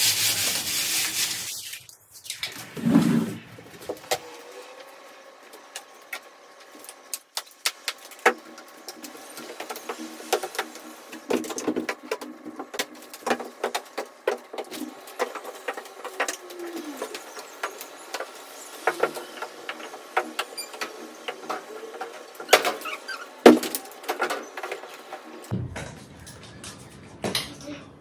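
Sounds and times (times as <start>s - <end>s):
clicks and knocks of objects handled: 5.5s - 27.8s.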